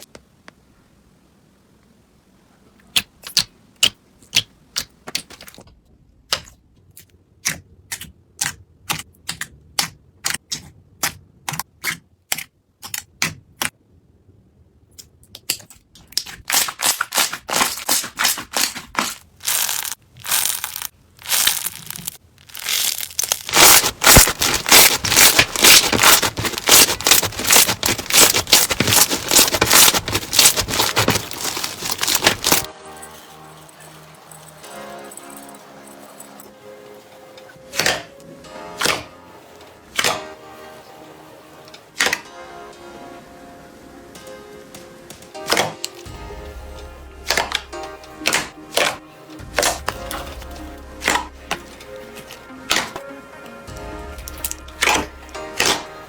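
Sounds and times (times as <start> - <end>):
slime popping and crunching: 15.5 - 32.7.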